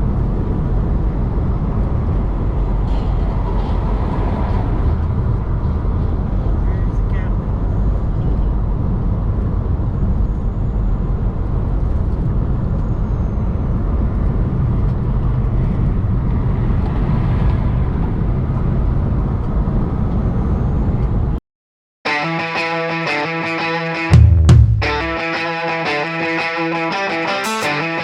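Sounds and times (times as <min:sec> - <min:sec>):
truck engine and road noise: 0:00.0 - 0:21.4.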